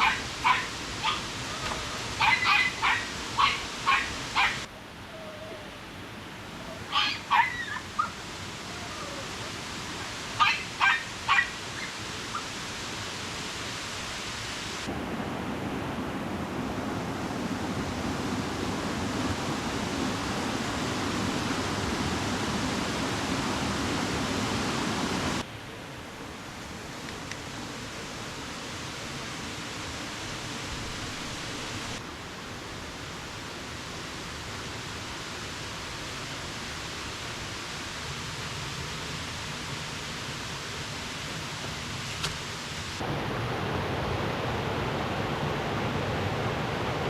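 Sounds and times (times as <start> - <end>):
puppy yelping: 0.0 - 4.6, 6.7 - 8.2, 10.4 - 11.5
rushing water: 0.0 - 47.0.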